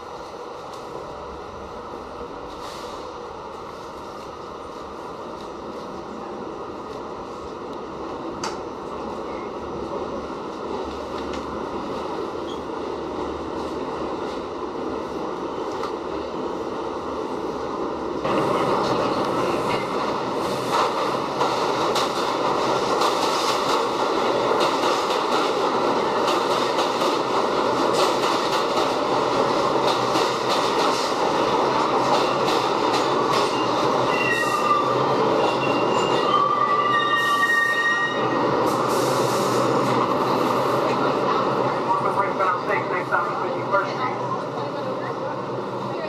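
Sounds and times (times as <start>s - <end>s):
subway train rumble and rattle: 0.0s - 46.0s
train wheels squealing: 33.4s - 38.4s.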